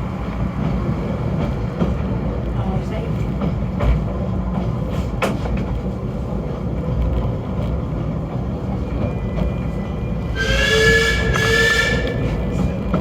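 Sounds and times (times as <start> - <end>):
train rumbling: 0.0 - 13.0
train warning signal chord: 9.9 - 12.7.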